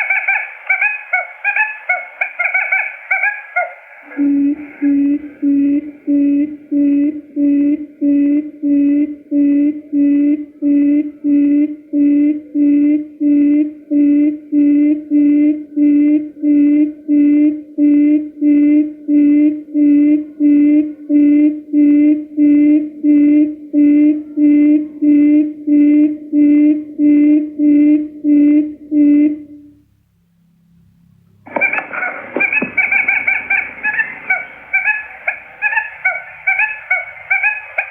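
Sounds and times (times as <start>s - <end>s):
quail lure call hooting: 0.0s - 17.2s, 31.5s - 37.9s.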